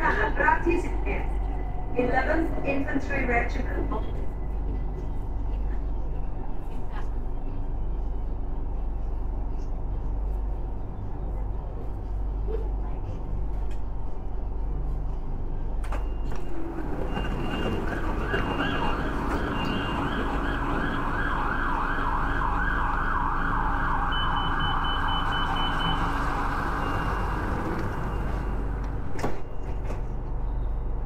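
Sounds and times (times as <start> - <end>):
train car wavering whine: 14.2 - 31.0.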